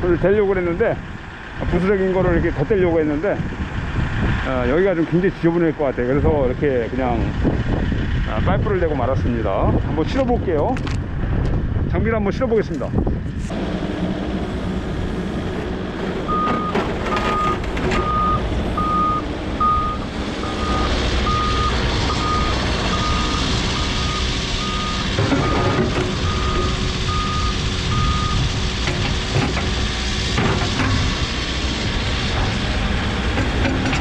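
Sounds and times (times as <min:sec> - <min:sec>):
excavator diesel engine running: 0:00.0 - 0:11.8, 0:12.7 - 0:34.0
knocks and clanks: 0:15.5 - 0:18.6, 0:25.0 - 0:26.8, 0:28.8 - 0:31.3, 0:32.3 - 0:34.0
travel alarm beeping: 0:16.3 - 0:28.4.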